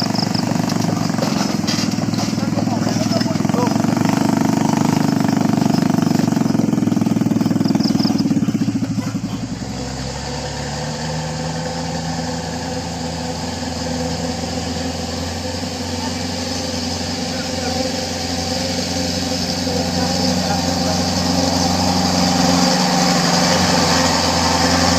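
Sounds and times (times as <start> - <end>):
vehicle engine running hard: 0.0 - 24.9.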